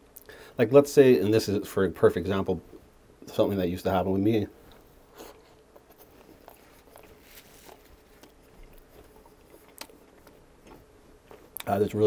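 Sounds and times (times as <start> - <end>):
faint chewing of bread: 4.5 - 12.0
mouth clicks: 8.2 - 11.8.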